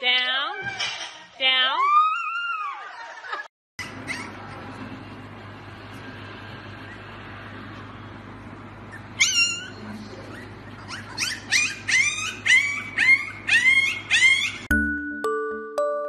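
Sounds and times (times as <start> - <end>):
puppy whimpering: 3.8 - 4.8, 8.9 - 14.7
faint low hum: 3.8 - 14.7
music: 14.7 - 16.0.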